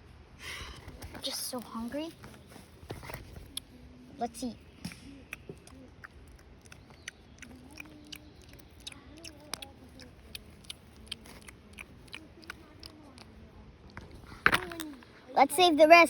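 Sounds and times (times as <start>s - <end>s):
eating clicks and smacks: 4.8s - 15.0s.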